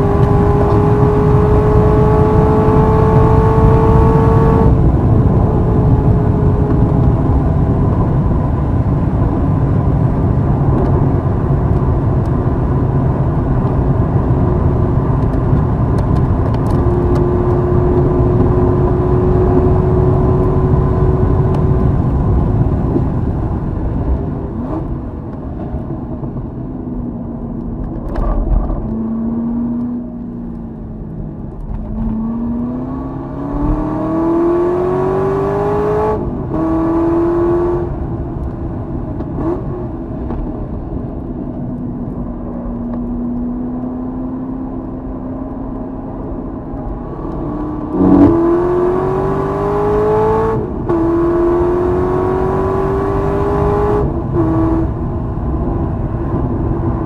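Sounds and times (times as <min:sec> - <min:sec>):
car engine revving: 0:00.0 - 0:08.8, 0:27.8 - 0:38.5, 0:42.7 - 0:57.0.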